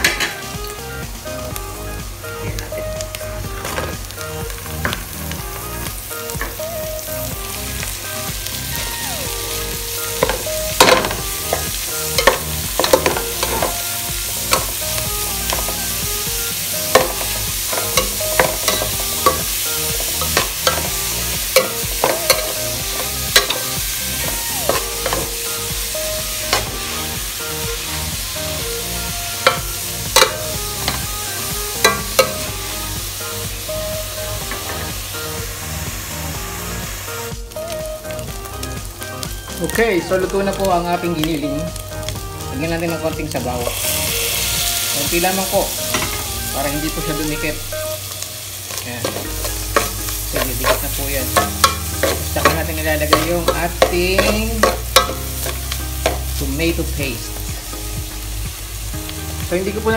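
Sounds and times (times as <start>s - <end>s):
meat sizzling in a pot: 0.0s - 59.9s
metal spoon scraping pot: 48.7s - 56.3s.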